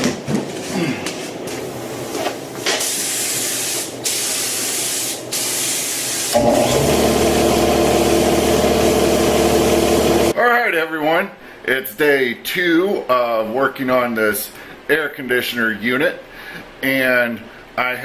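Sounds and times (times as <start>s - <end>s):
paint spraying hiss: 2.6s - 6.4s
steady machine hum: 6.4s - 10.4s.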